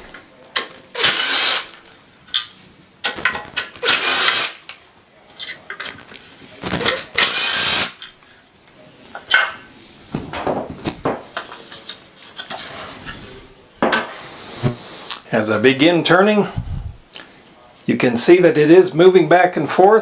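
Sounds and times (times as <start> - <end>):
clicks and rattles of parts: 0.1 - 4.8
power screwdriver running: 1.0 - 1.7, 3.8 - 4.6, 7.2 - 8.0.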